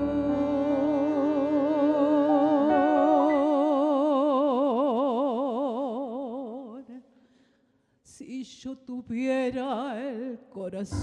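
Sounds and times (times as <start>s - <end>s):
bandoneon and piano accompaniment: 0.0s - 4.2s
woman singing sustained note: 0.0s - 4.9s.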